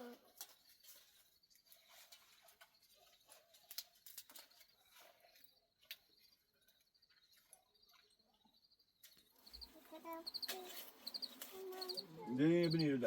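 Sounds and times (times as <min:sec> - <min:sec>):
rapid high chirping: 0:09.4 - 0:13.0.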